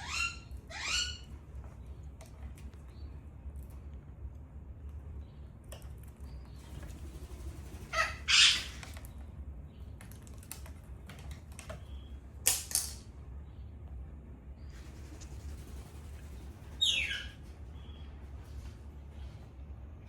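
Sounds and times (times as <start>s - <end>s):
parrot screech: 0.0s - 1.3s
parrot squawks: 0.0s - 1.3s, 7.9s - 8.8s, 16.8s - 17.4s.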